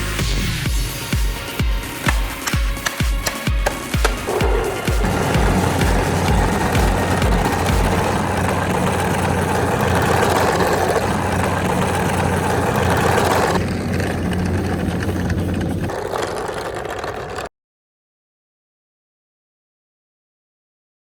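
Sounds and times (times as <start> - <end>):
car engine idling: 1.4 - 17.5.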